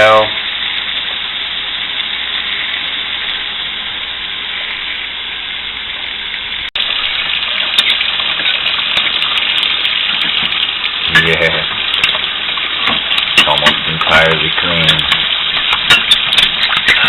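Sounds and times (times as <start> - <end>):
tap water running onto dish: 6.8 - 17.0.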